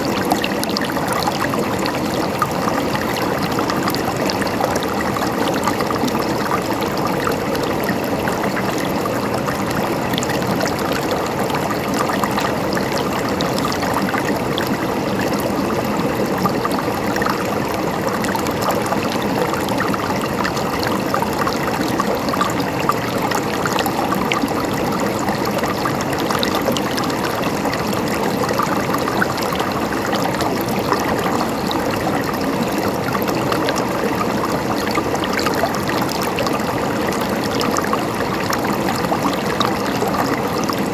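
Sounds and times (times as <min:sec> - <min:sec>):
stream gurgling over rocks: 0:00.0 - 0:40.9.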